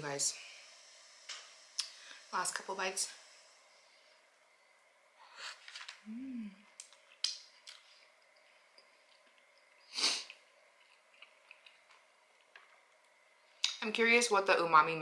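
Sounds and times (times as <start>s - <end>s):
person chewing: 5.6s - 12.7s
wet mouth clicks and smacks: 6.8s - 7.8s.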